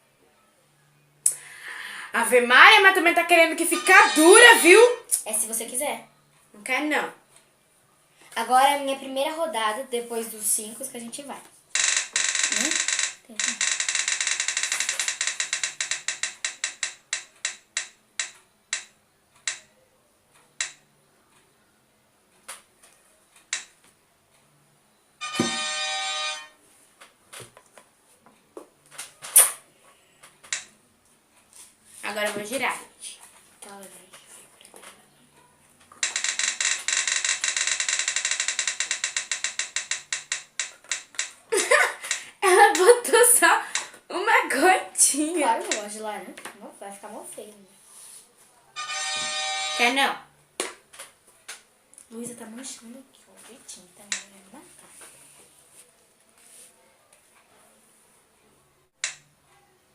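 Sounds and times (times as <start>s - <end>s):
roulette wheel ticking: 11.8s - 19.6s, 36.0s - 41.4s
roulette wheel pointer clicking: 36.0s - 41.4s.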